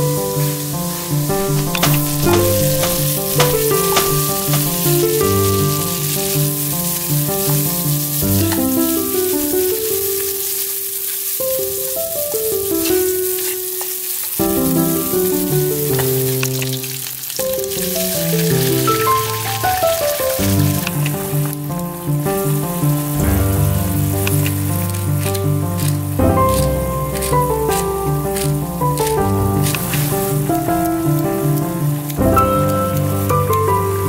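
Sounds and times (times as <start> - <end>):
food sizzling in oil: 0.1 - 34.0
background music: 22.4 - 34.0.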